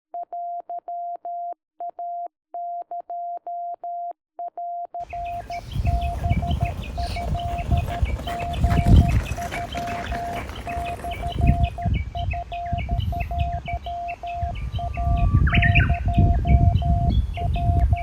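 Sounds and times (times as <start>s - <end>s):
morse code beeps: 0.2s - 8.4s, 10.8s - 18.0s
birds chirping: 5.0s - 18.0s
low wind rumble: 5.1s - 18.0s.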